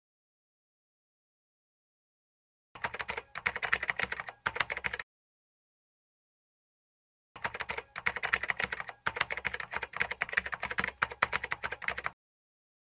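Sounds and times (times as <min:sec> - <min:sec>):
keyboard typing clicks: 0:02.8 - 0:05.0, 0:07.4 - 0:12.2.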